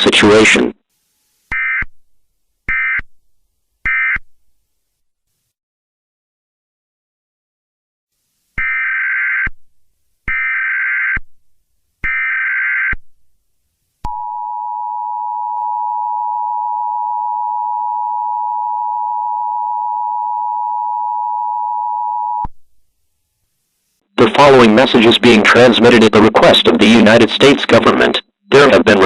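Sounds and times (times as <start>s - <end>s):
steady two-tone attention signal: 14.1s - 22.5s.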